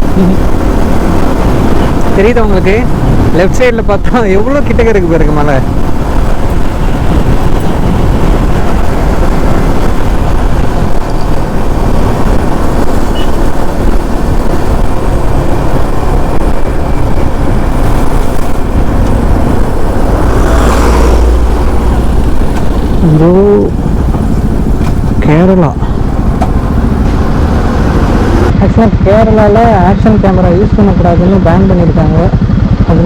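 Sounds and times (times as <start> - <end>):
motorcycle engine and road noise: 0.0 - 33.0
wind rushing on microphone: 0.0 - 33.0.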